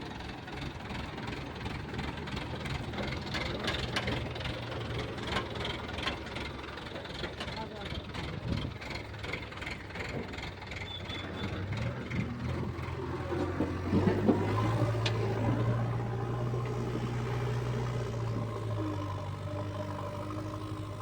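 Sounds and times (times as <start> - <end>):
excavator diesel engine running: 0.0 - 21.0
knocks and clatter: 11.5 - 17.5.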